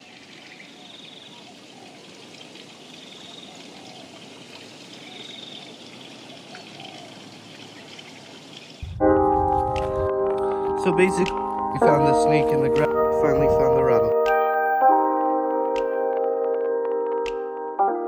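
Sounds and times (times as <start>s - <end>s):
running water: 0.0s - 14.1s.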